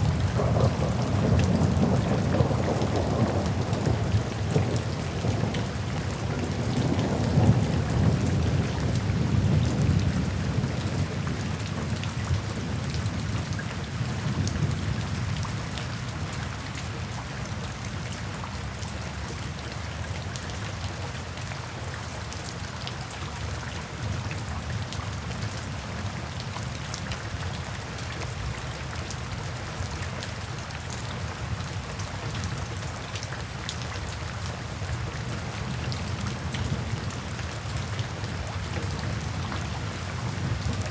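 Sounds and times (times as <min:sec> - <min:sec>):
low thunder rumble: 0:00.0 - 0:10.8, 0:40.2 - 0:40.9
steady rain: 0:00.0 - 0:40.9.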